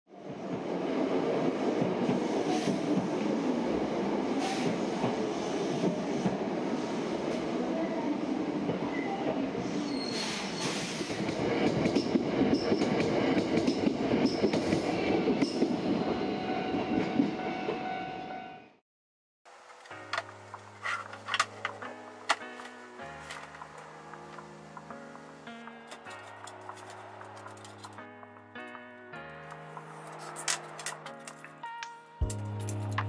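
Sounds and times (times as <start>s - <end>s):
train rumbling on rails: 0.1s - 18.4s, 19.5s - 31.6s
high wheel squeals: 9.7s - 11.0s.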